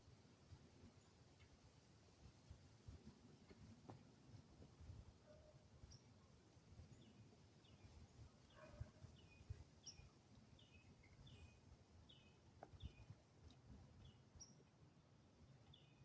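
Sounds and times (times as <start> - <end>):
faint bird chirps: 6.9 - 13.2.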